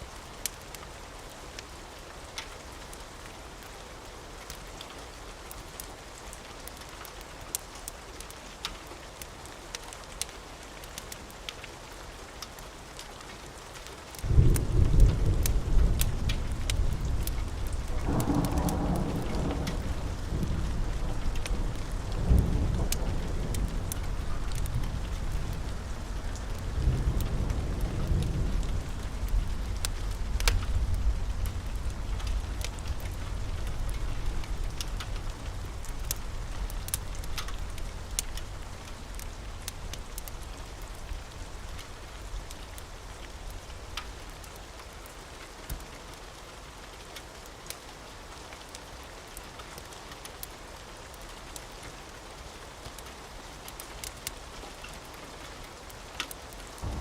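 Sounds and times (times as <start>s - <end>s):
rain on a roof: 0.0s - 57.0s
sharp clicks and crackles: 13.8s - 44.6s, 55.8s - 57.0s
thunder rumbling: 14.3s - 43.9s.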